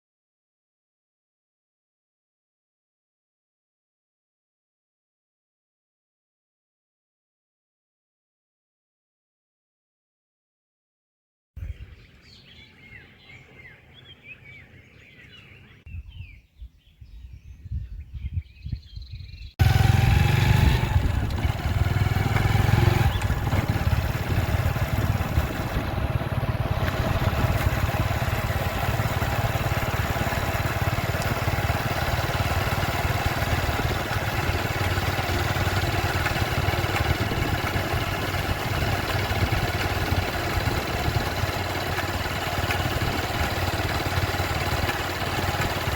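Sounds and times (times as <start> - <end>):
faint birds chirping: 11.6 - 19.8, 22.7 - 36.4
vehicle engine running: 19.6 - 45.9.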